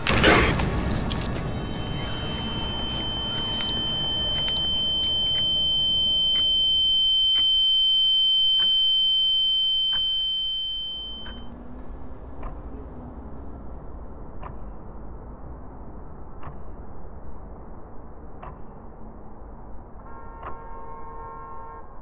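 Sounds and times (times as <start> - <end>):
high-pitched tone: 1.2 - 11.7.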